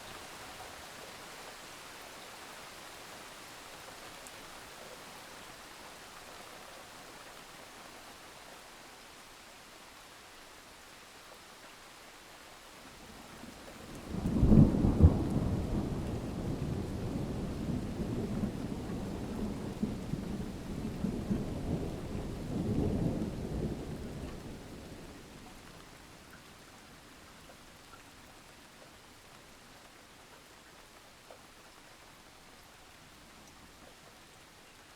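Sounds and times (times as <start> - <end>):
steady rain hiss: 0.0 - 34.9
thunder rumbling: 14.1 - 24.7.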